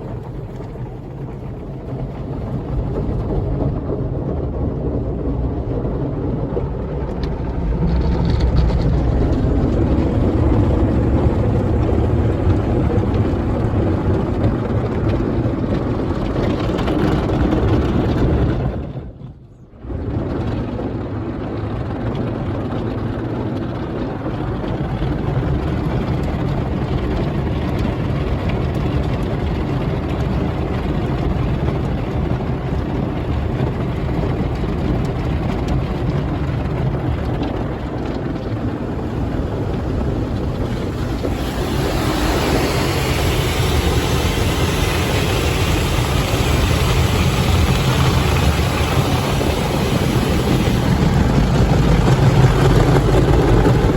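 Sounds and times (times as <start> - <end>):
low machine rumble: 0.0 - 53.9
running water: 37.3 - 53.2.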